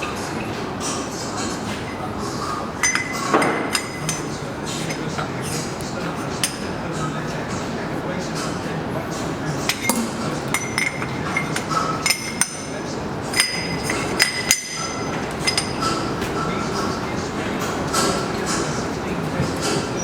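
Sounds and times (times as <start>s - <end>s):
workshop background noise: 0.0s - 20.0s
hammer striking metal: 9.7s - 12.7s.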